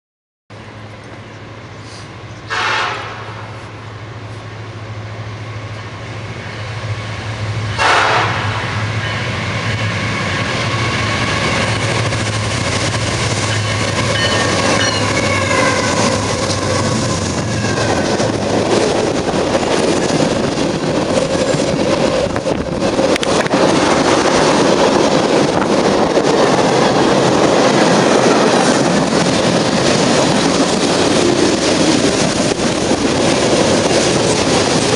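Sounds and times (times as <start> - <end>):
train rumbling: 0.5 - 34.9
train horn blasts: 2.5 - 3.6, 7.8 - 8.8, 14.2 - 16.6.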